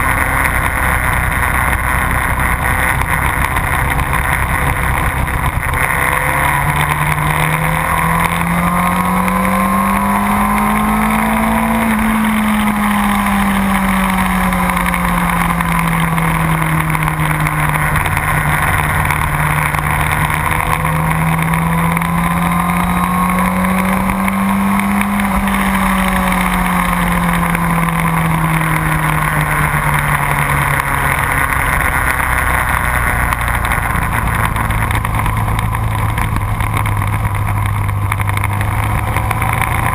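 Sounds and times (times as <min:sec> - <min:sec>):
heavy rush of noise: 0:00.0 - 0:39.9
motorcycle engine accelerating: 0:00.0 - 0:39.9.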